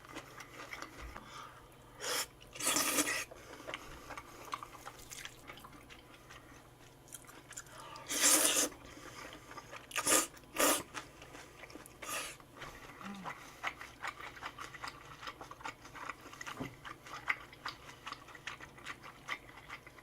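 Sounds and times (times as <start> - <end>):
person chewing and crunching: 0.0 - 1.3, 2.0 - 20.0
slurping: 2.0 - 5.4, 8.0 - 15.4.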